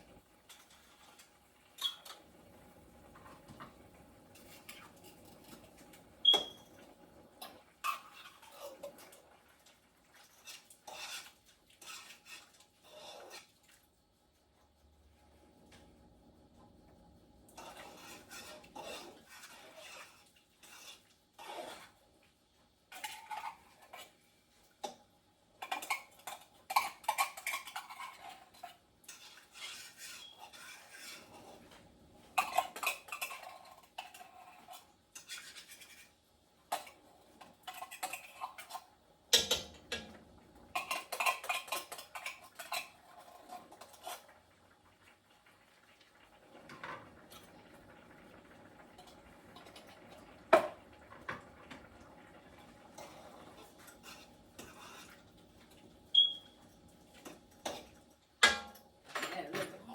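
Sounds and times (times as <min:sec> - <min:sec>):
metal utensil scraping a pot: 0:07.4 - 0:09.2, 0:10.1 - 0:13.6, 0:17.6 - 0:22.0, 0:22.9 - 0:24.2, 0:25.6 - 0:44.3, 0:52.8 - 0:55.2, 0:57.2 - 0:59.7.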